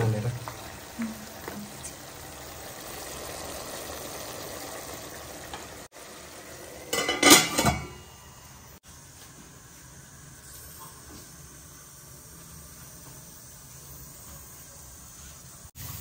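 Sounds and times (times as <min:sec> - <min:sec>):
pork sizzling in a pan: 0:00.0 - 0:16.0
metal lid clattering onto pan: 0:06.9 - 0:08.0.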